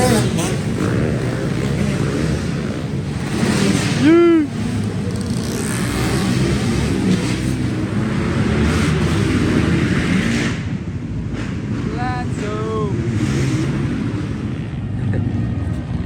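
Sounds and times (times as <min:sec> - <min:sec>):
small motorbike engines revving: 0:00.0 - 0:16.0
person calling out: 0:04.0 - 0:04.6, 0:11.9 - 0:13.1.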